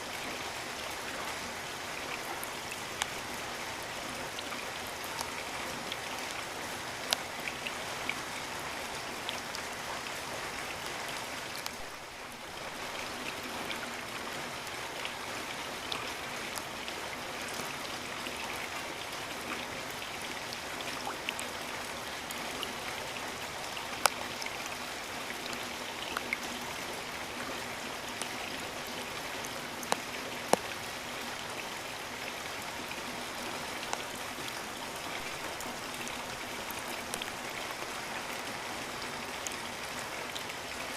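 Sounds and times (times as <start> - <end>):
steady rain hiss: 0.0 - 40.9
taps of raindrops close by: 4.4 - 12.1, 29.4 - 31.5.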